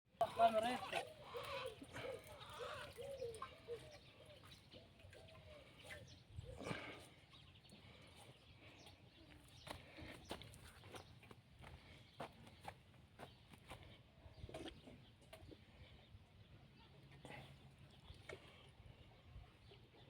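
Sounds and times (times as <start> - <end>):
bird calls: 1.1 - 11.3.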